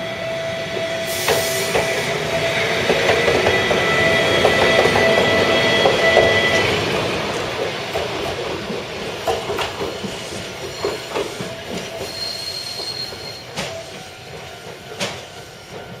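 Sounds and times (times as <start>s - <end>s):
train rolling: 0.0s - 16.0s
train wheels squealing on rails: 0.0s - 16.0s.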